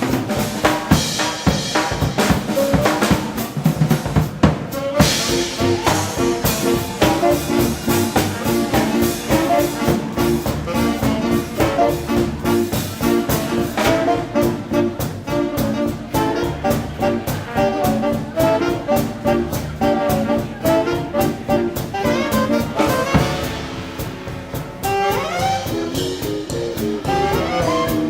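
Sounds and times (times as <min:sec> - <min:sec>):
brass horns: 0:00.0 - 0:28.0
driving drum beat: 0:00.0 - 0:28.0.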